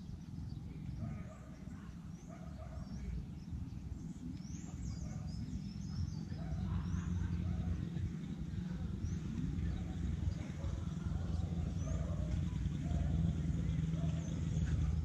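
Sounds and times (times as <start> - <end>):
birds chirping: 0.0 - 15.0
low steady rumble: 0.0 - 15.0.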